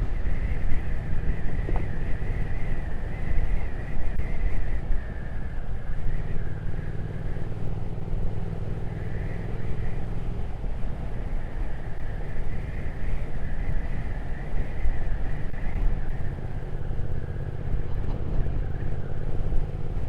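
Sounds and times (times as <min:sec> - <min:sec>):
wind rushing over microphone: 0:00.0 - 0:20.0
motorcycle engine running: 0:05.3 - 0:20.0.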